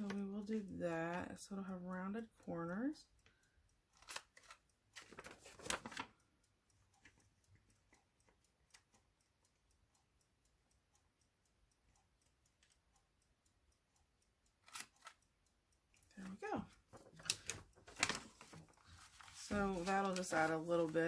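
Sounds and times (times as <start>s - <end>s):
faint ticks: 0.0s - 21.0s
paper rustling: 4.0s - 6.1s, 16.9s - 20.9s.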